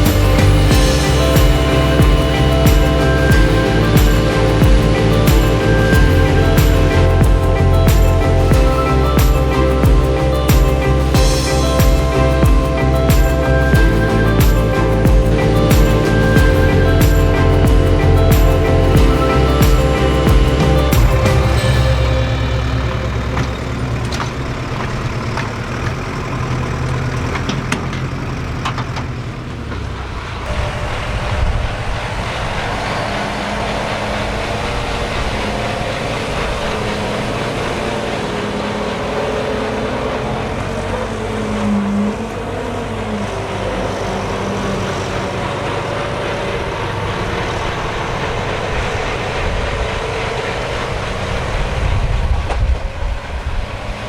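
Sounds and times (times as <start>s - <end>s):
diesel machinery engine running: 0.0s - 54.0s.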